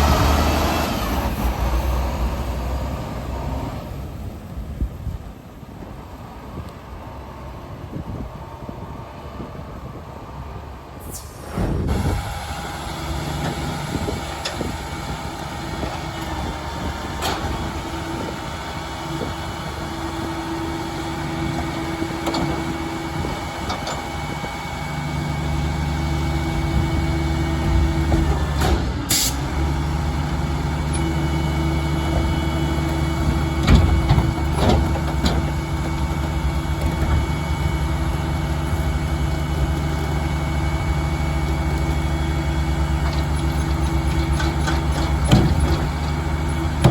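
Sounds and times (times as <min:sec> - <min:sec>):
garbage truck diesel engine running: 0:00.0 - 0:46.9
metal clanks: 0:33.3 - 0:37.4, 0:42.9 - 0:46.9.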